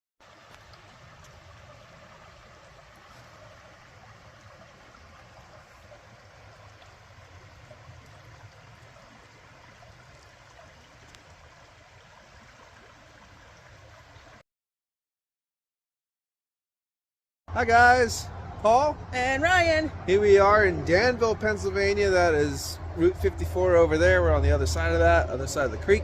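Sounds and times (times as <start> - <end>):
stream water rushing: 0.2 - 14.4.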